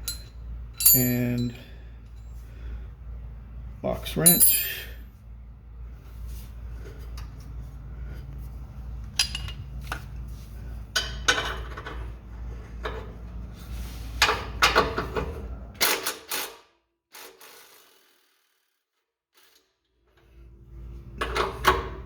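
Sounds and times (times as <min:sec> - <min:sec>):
metal clinks: 0:00.0 - 0:02.4, 0:04.2 - 0:05.0.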